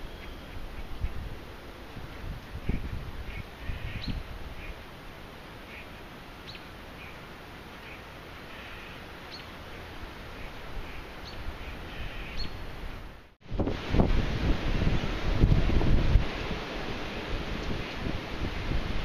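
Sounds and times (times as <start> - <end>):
wind buffeting the microphone: 0.0 - 4.8, 10.4 - 19.0
birds chirping: 2.6 - 4.8, 5.6 - 13.0.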